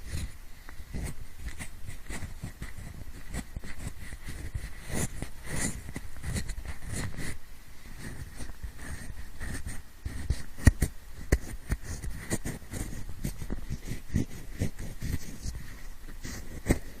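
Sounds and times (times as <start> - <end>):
pencil scratching on microphone: 0.0 - 7.4, 8.0 - 17.0
pencil tapping clicks: 8.1 - 15.3.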